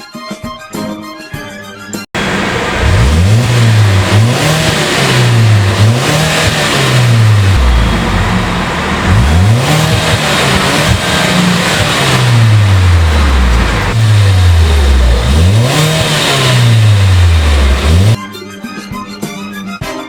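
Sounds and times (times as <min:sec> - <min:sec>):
car engine revving: 0:02.2 - 0:18.2.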